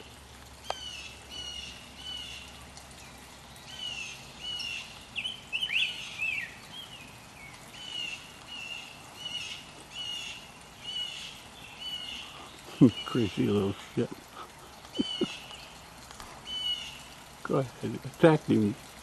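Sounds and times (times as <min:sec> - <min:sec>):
bird chirping: 0:00.7 - 0:13.6, 0:15.0 - 0:15.8.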